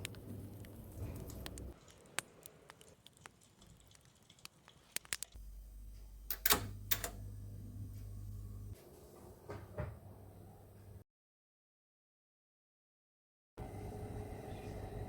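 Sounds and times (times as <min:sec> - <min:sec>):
low steady hum: 0:05.4 - 0:08.8.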